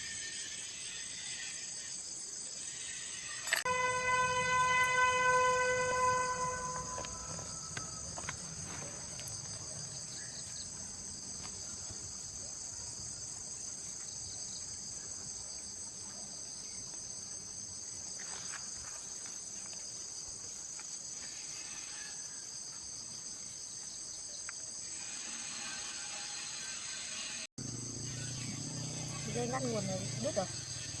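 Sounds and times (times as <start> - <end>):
insects buzzing: 0.0 - 31.0
ringing tone: 3.4 - 7.5.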